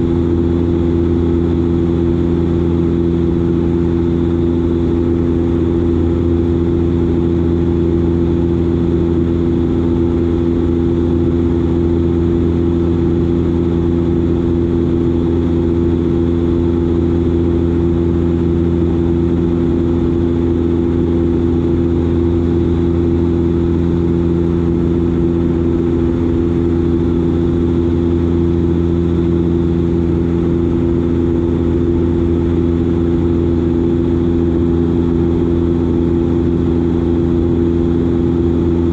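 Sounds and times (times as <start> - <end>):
turboprop engines droning in flight: 0.0 - 38.9.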